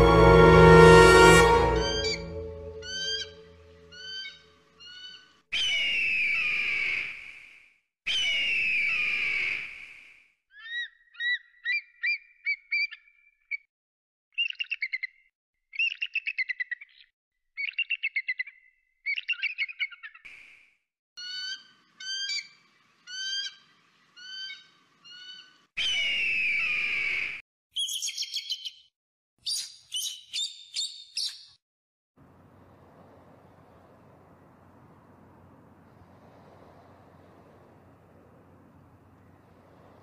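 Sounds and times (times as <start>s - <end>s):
bird chirps and trills: 1.8s - 5.8s, 27.8s - 28.9s.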